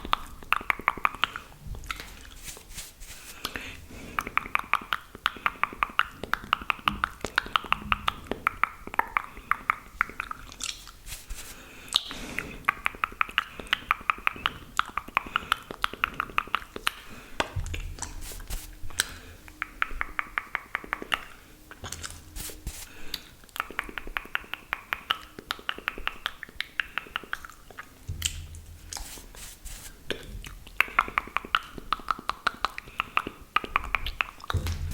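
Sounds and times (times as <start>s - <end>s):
wet mouth clicks and smacks: 4.2s - 8.2s, 9.0s - 11.0s, 11.9s - 17.0s, 23.2s - 29.1s, 30.4s - 34.6s.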